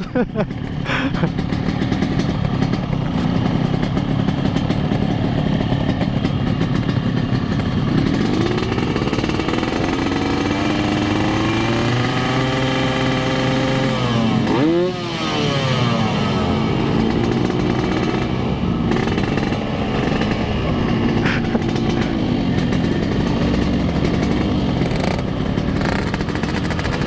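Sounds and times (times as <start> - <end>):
motorcycle engine revving: 0.0 - 27.0
motorcycle engines idling: 0.0 - 27.0.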